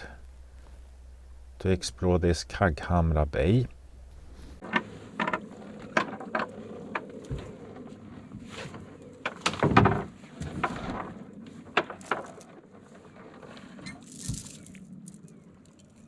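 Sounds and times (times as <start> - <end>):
gear clattering on a boat: 0.0 - 4.6
brief rustle: 3.4 - 4.6.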